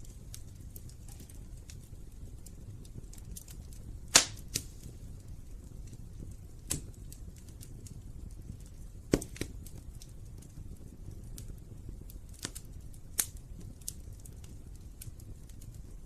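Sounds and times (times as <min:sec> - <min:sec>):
sharp pops of fire: 0:00.0 - 0:16.0
wood fire crackling: 0:00.0 - 0:16.0.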